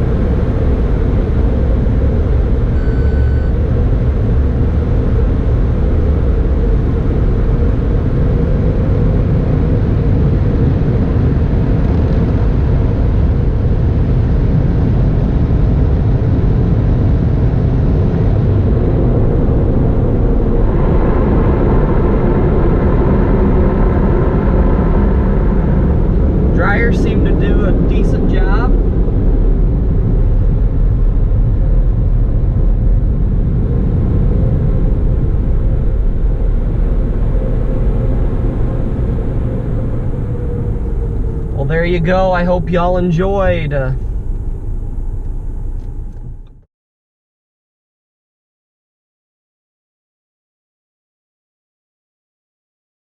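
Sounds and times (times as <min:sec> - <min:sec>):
car wash dryer blowers blasting air: 0:18.6 - 0:46.5.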